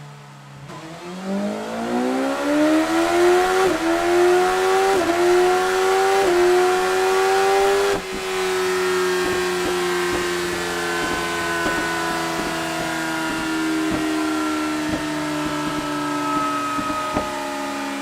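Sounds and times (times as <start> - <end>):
motorcycle engine revving: 0.6 - 18.0.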